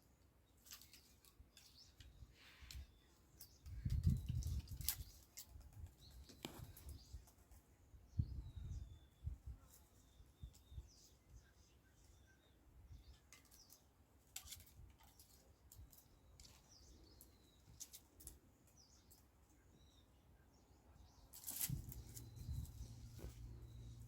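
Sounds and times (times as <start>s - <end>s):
rustles: 0.0s - 7.8s, 13.0s - 19.8s, 21.1s - 24.0s
faint birds chirping: 0.0s - 24.0s.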